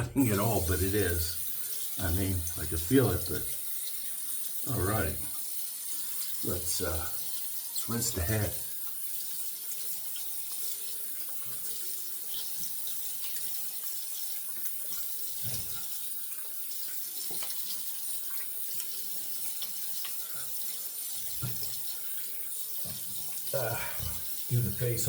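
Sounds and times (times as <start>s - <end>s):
tap running into sink: 12.3s - 18.9s, 21.2s - 21.9s.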